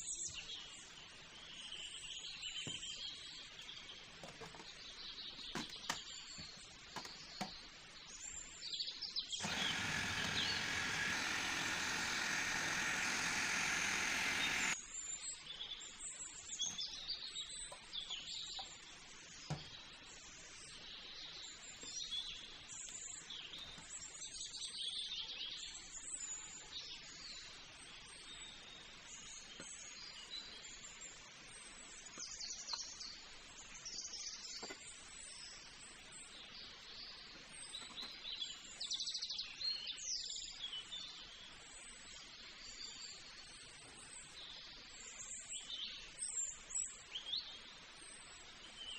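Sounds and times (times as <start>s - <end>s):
birds chirping: 1.8s - 14.8s.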